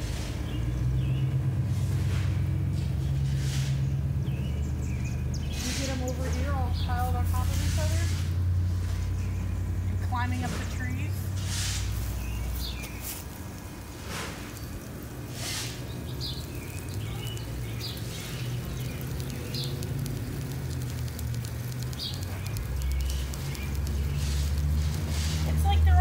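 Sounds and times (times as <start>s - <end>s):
high bird chirps: 14.4s - 25.5s.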